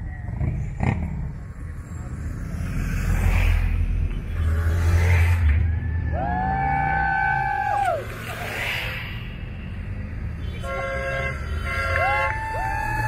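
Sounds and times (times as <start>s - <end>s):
motorcycle engines rumbling: 0.0s - 13.0s.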